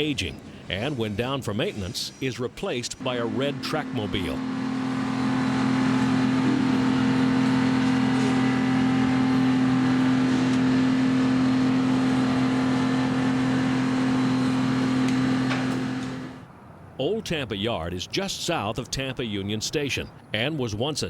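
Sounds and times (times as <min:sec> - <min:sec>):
locomotive diesel engine running: 0:00.0 - 0:16.5.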